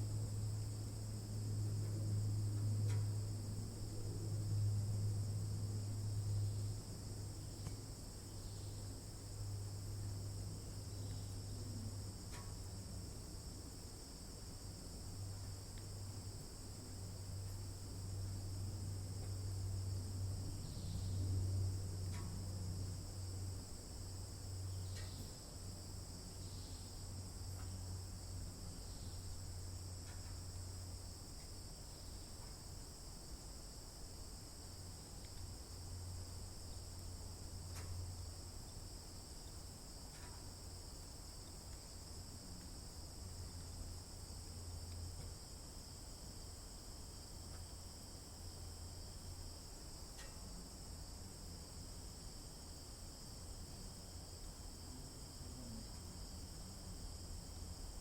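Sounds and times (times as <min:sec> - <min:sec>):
low steady rumble: 0:00.0 - 0:52.4
insects trilling: 0:00.0 - 0:58.0
faint chirps or ticks: 0:02.8 - 0:03.1, 0:12.3 - 0:12.6, 0:22.0 - 0:22.4, 0:24.8 - 0:25.4, 0:27.5 - 0:27.8, 0:30.0 - 0:30.4, 0:37.7 - 0:38.0, 0:40.1 - 0:40.4, 0:50.1 - 0:50.4.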